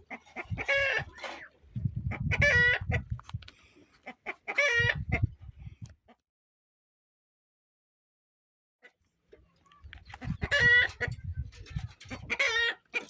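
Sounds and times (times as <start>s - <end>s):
chickens calling: 0.0s - 6.2s, 8.8s - 13.0s.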